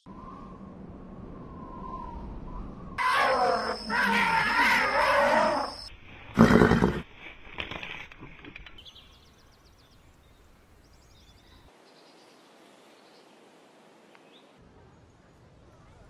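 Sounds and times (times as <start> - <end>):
large animal wavering call: 1.5 - 5.9
loud animal blast: 3.0 - 5.8.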